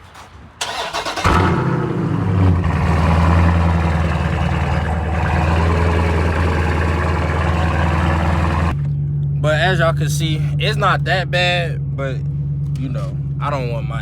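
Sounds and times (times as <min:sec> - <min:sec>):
loud car engine idling: 0:01.1 - 0:08.8.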